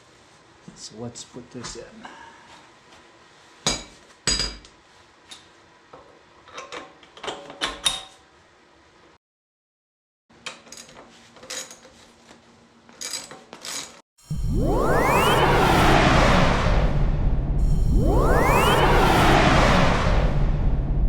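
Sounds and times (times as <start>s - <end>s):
steel bolt and tools clinking on metal: 10.4s - 12.0s, 12.9s - 14.0s.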